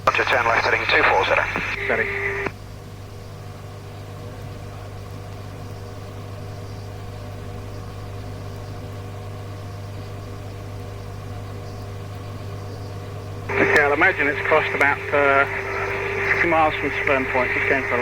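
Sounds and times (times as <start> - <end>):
radio hiss: 0.0 - 2.6, 11.5 - 18.0
low hum: 6.4 - 18.0
steady tones: 13.5 - 18.0.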